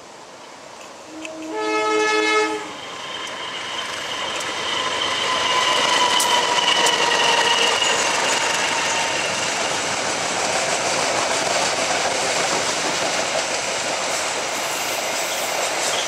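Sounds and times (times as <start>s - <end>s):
train passing at speed: 0.0s - 16.0s
sharp clicks of train: 0.3s - 1.7s, 2.7s - 16.0s
locomotive horn: 1.1s - 2.8s.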